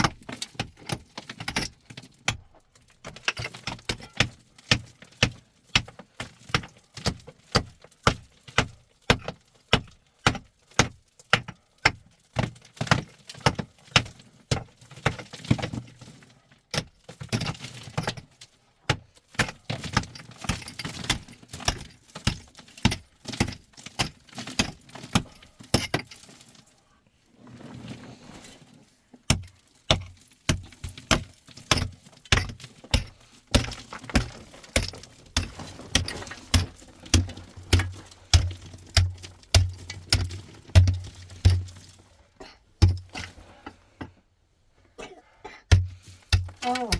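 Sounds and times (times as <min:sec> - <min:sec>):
quiet rustling: 0:26.2 - 0:30.4.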